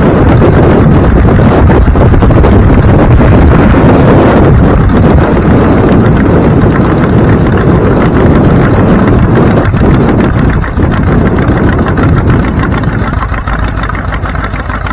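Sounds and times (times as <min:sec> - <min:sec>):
vehicle engine running: 0:00.0 - 0:14.9
wind buffeting microphone: 0:00.0 - 0:14.9.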